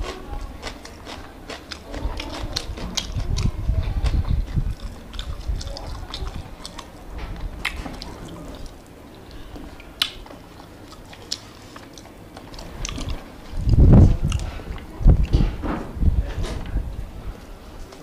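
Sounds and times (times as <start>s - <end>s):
chewing raw onion: 0.0s - 15.6s
wet mouth clicks: 1.1s - 6.9s, 9.8s - 15.4s
dull low thuds: 13.5s - 17.0s.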